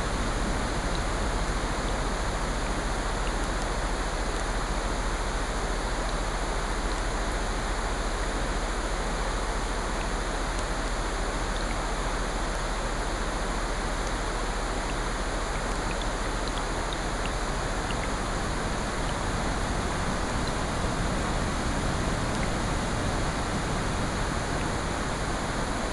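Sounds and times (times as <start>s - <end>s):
rain hissing: 0.0s - 25.9s.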